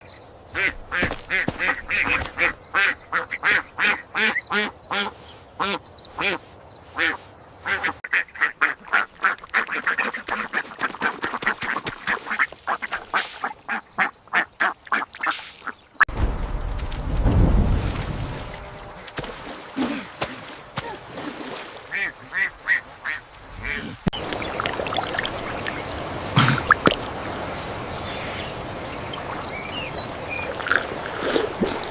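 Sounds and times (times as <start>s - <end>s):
duck quacking: 0.6s - 15.3s, 21.9s - 24.0s
low rumbling noise: 16.1s - 19.2s.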